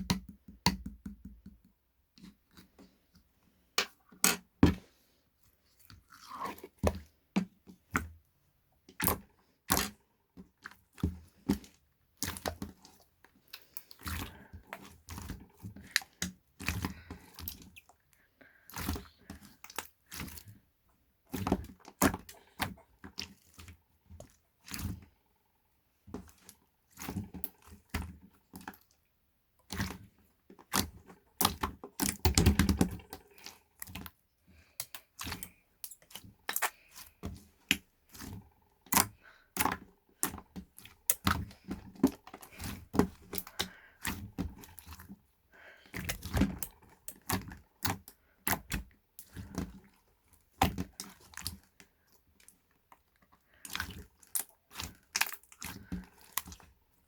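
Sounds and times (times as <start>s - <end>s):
close-up clicks and taps: 0.0s - 1.8s.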